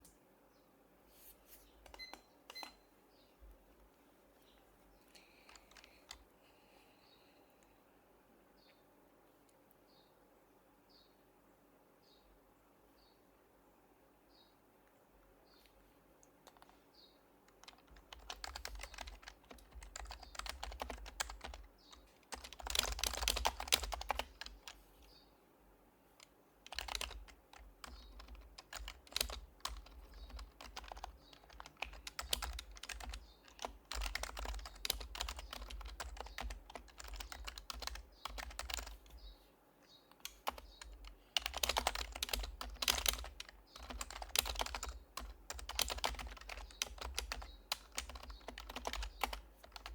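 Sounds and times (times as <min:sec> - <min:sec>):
keyboard typing: 0:01.8 - 0:02.8, 0:05.4 - 0:06.3, 0:16.4 - 0:16.8, 0:17.5 - 0:24.8, 0:26.2 - 0:39.3, 0:40.1 - 0:49.9.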